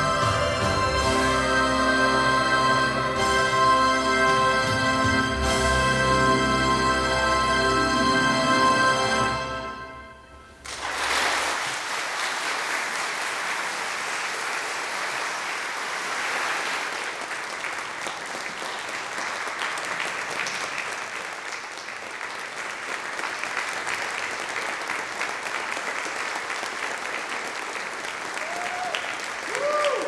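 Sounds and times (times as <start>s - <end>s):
congregation clapping: 10.6s - 30.0s.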